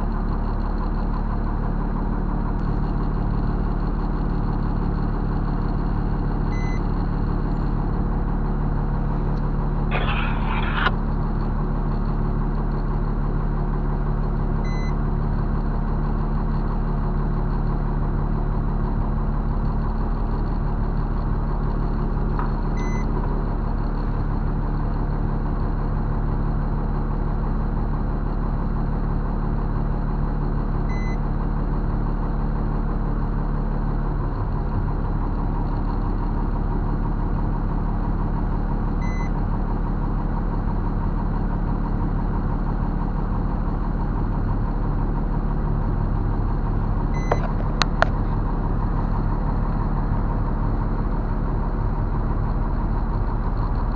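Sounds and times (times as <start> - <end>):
truck diesel engine idling: 0.0 - 53.9
short high electronic beep: 9.9 - 10.9.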